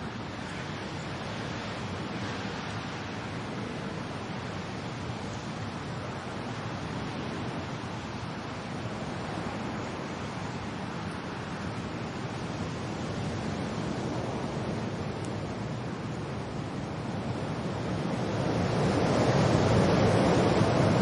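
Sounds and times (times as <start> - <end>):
rain: 0.0 - 21.0
wind: 0.0 - 21.0.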